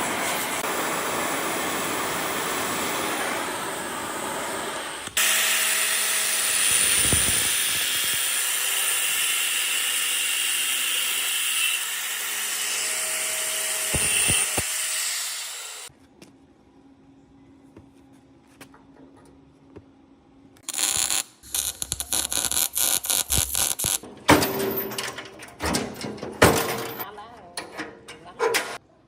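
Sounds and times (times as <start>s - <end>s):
loud steady hiss: 0.0s - 5.8s, 20.6s - 24.0s
metal parts clattering and scraping: 21.6s - 27.1s.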